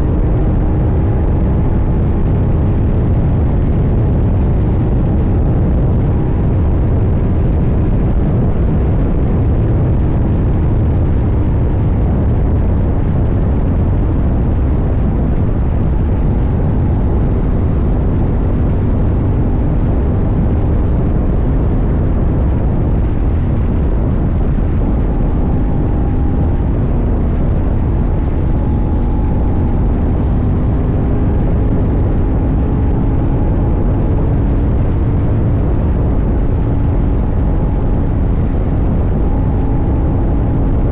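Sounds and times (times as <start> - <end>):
wind and road noise: 0.0 - 40.9
motorcycle engine running: 12.9 - 40.6.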